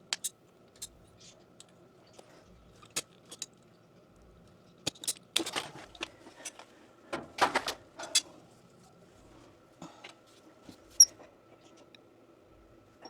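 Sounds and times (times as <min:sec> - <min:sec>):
rustling and scraping: 0:04.9 - 0:09.6.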